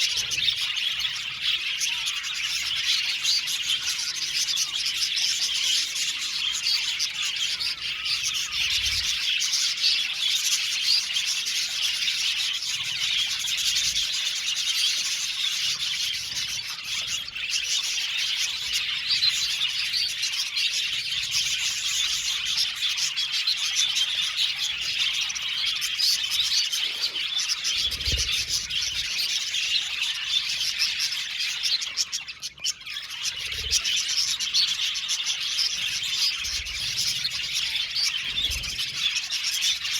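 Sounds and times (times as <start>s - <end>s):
budgies chattering and chirping: 0.0s - 39.9s.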